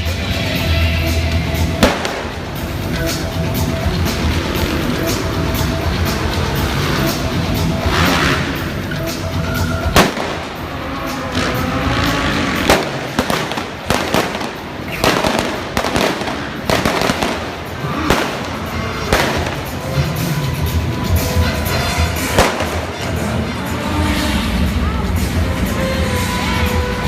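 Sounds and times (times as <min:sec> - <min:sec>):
loud show music from loudspeakers: 0:00.0 - 0:27.0
pyrotechnic bangs: 0:01.8 - 0:04.2, 0:09.9 - 0:20.6, 0:22.2 - 0:23.3.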